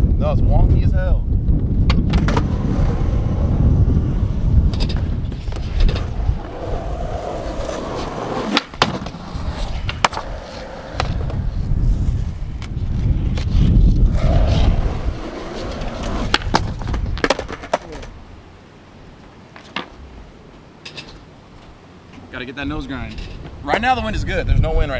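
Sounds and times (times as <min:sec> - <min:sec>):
skateboard wheels rolling: 0:01.6 - 0:22.4
skateboard clacking on ground: 0:04.6 - 0:11.5, 0:14.1 - 0:18.2.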